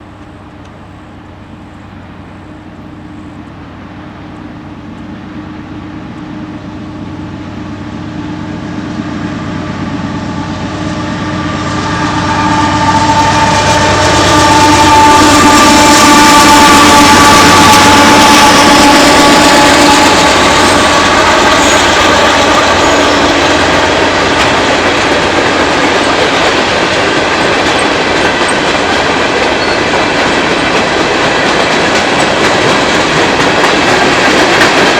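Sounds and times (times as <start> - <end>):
freight train rumbling past: 0.0 - 34.9.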